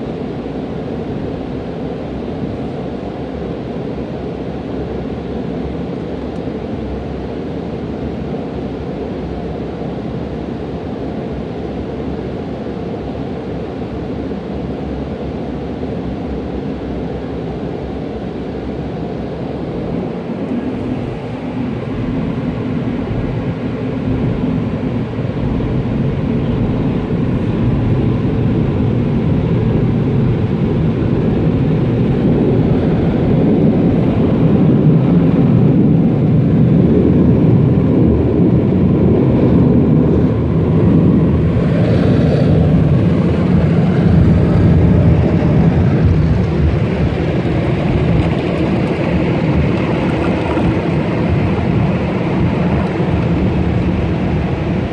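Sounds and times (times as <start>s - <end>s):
car wash machinery rumbling: 16.8s - 54.9s.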